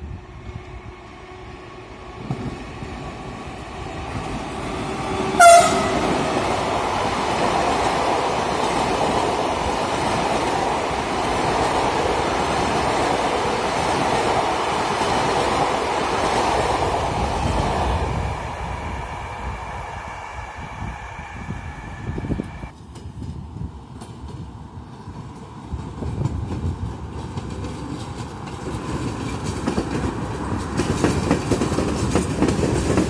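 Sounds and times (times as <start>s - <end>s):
train running past: 0.0s - 33.0s
train horn blast: 5.3s - 6.4s.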